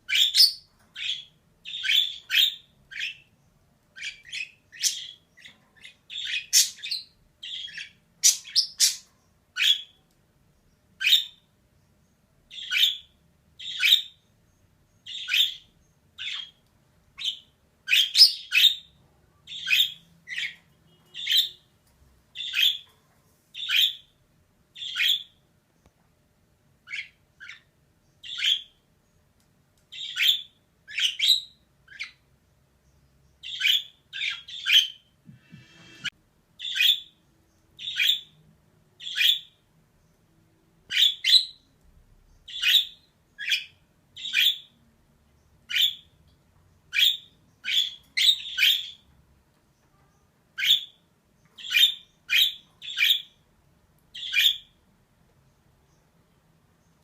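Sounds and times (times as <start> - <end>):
budgerigar chirps and squawks: 0.1 - 3.3, 4.0 - 10.0, 17.2 - 21.7, 22.4 - 22.8, 23.6 - 24.1, 24.8 - 25.4, 37.8 - 38.4, 39.0 - 39.6, 42.5 - 44.8, 45.7 - 46.2, 46.9 - 49.0, 50.6 - 51.0, 51.6 - 53.4, 54.2 - 54.7.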